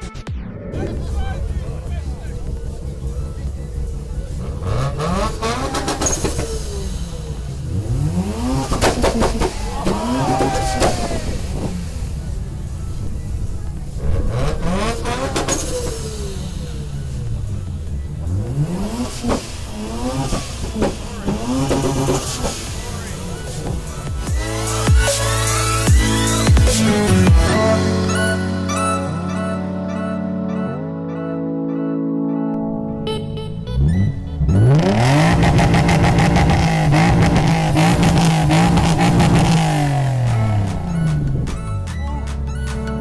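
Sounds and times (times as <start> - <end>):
low engine rumble: 0.4 - 30.8
car engines revving: 0.7 - 29.2, 33.7 - 43.0.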